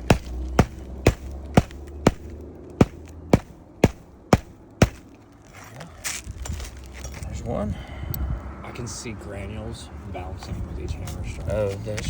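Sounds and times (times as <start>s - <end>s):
hammer striking roofing nail: 0.0s - 5.1s.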